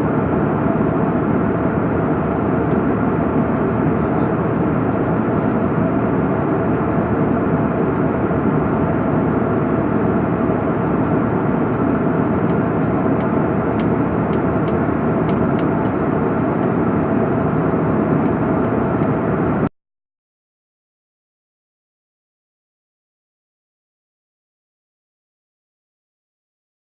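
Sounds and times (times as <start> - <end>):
airliner cabin noise: 0.0 - 19.7.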